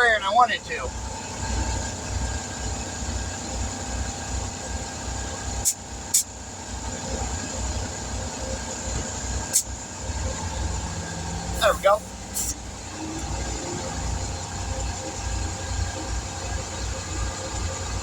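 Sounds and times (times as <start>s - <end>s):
air compressor chugging: 1.0s - 18.0s
air hissing into tire: 5.6s - 6.3s, 9.5s - 9.8s, 11.6s - 12.7s.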